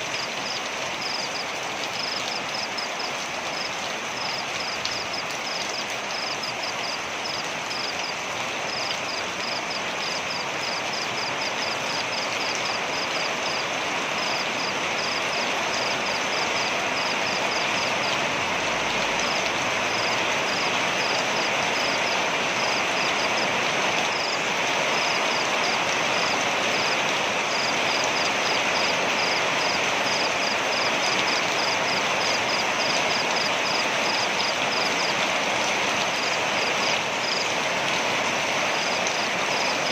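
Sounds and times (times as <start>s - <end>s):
waterfall rushing: 9.3s - 39.9s.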